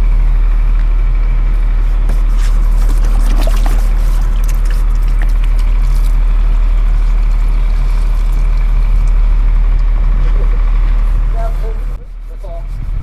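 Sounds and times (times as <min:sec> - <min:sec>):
loud steady low hum: 0:00.0 - 0:13.0
water pouring and trickling: 0:02.1 - 0:10.7.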